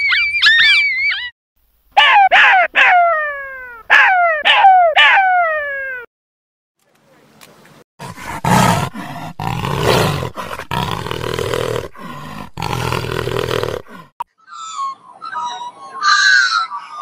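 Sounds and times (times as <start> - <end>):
jaguar roaring: 8.0 - 14.2.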